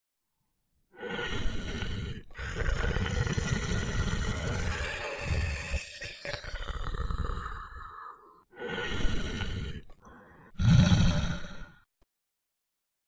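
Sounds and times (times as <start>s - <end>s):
tiger roaring: 1.1s - 6.0s, 10.6s - 11.8s.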